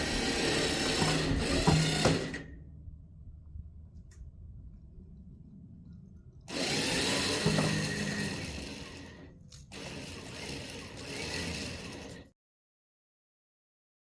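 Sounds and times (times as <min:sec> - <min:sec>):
winch motor running under load: 0:00.0 - 0:02.5, 0:06.5 - 0:12.3.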